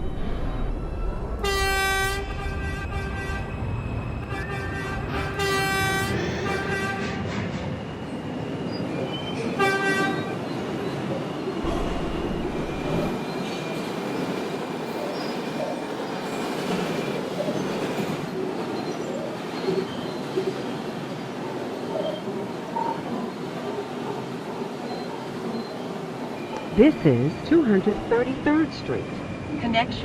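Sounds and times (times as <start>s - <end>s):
subway train rumbling: 0.0s - 30.0s
train horn: 1.4s - 3.6s, 4.3s - 7.4s, 9.5s - 10.5s.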